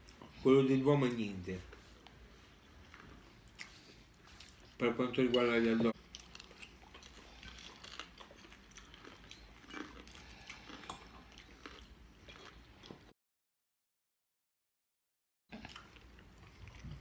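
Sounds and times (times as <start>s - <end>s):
close-up chewing: 1.6s - 4.8s, 5.7s - 13.1s, 15.5s - 17.0s.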